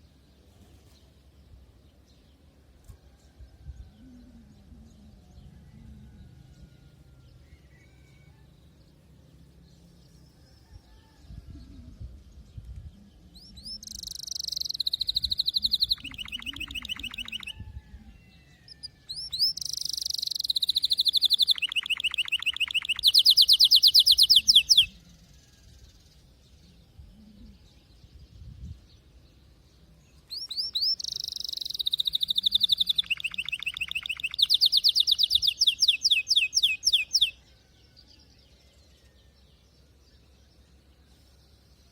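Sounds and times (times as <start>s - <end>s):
canary singing: 13.4s - 25.0s, 30.3s - 37.4s.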